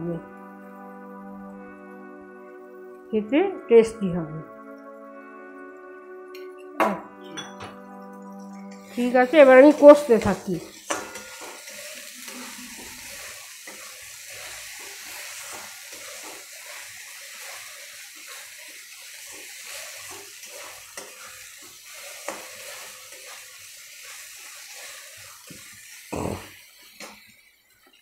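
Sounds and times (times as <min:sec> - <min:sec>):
spice paste sizzling in oil: 0:08.4 - 0:28.0
metal spatula scraping pan: 0:08.7 - 0:25.7.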